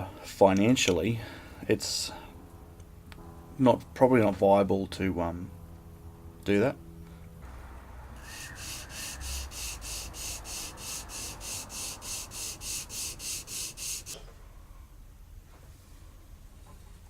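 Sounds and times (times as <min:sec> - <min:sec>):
hand sanding strokes: 0:08.2 - 0:14.2.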